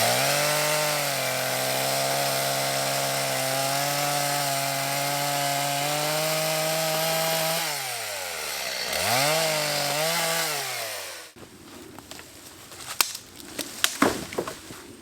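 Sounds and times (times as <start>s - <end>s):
chainsaw revving: 0.0s - 11.4s.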